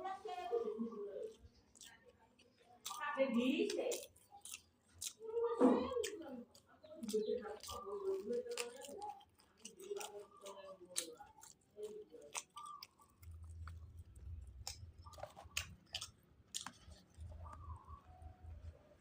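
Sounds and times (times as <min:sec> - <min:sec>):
person chewing: 0:01.2 - 0:19.0
wet mouth clicks and lip smacks: 0:07.0 - 0:17.9.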